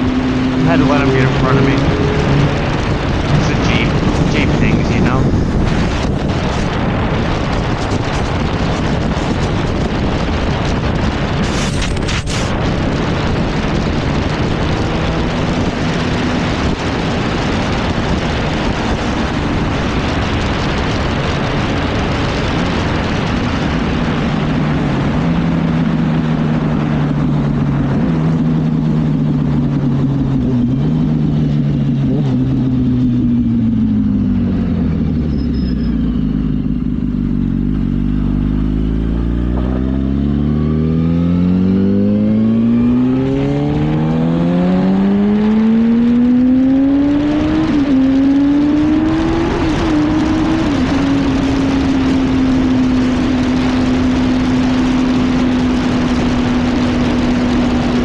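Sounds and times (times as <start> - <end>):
motorcycle engine at speed: 0.0 - 58.0
wind rush on microphone: 0.0 - 58.0.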